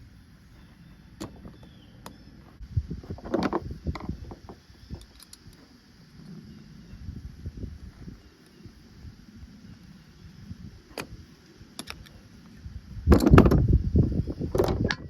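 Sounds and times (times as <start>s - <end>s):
tools clicking and clinking: 5.0s - 5.6s.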